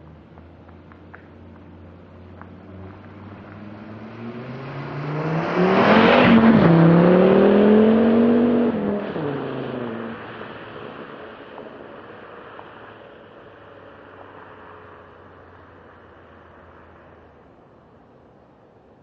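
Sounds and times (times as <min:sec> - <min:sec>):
car engine accelerating hard: 0:01.6 - 0:12.8.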